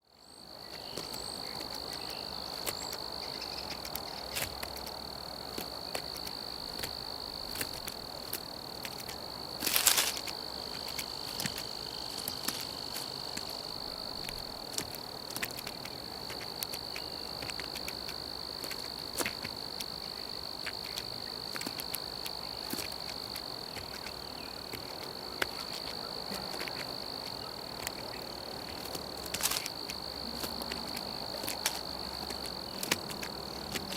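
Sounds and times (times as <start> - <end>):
crickets trilling: 0.0 - 33.9.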